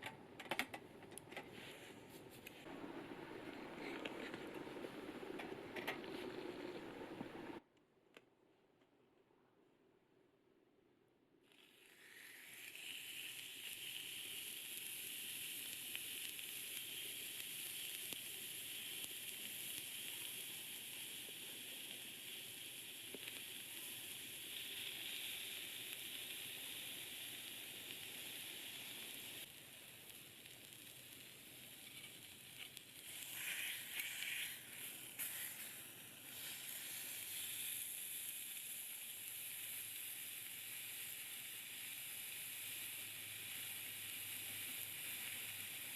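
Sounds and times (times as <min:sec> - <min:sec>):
steak sizzling on a grill: 0:12.4 - 0:45.9.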